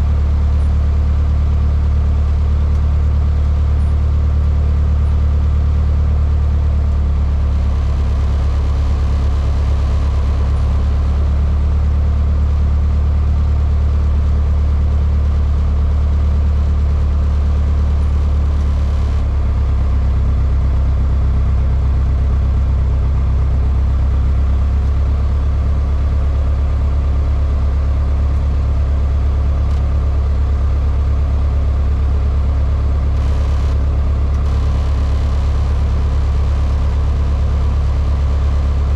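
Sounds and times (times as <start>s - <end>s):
plane engine and propeller drone: 24.5s - 38.9s.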